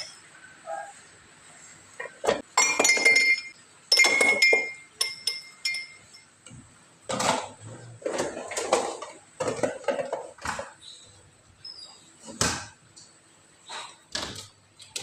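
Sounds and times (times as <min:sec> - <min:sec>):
glasses and plates clinking: 0:02.0 - 0:06.4.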